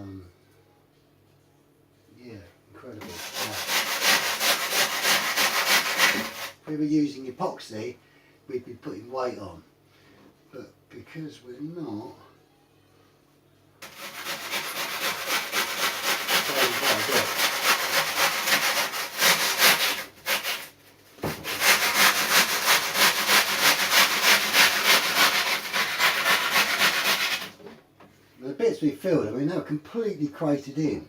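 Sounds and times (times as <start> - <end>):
hand sanding foam: 3.0 - 6.6, 13.8 - 27.6.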